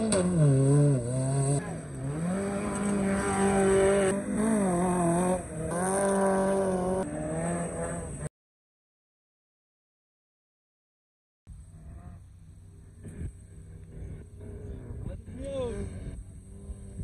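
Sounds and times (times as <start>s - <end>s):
engines revving hard: 0.0s - 8.3s.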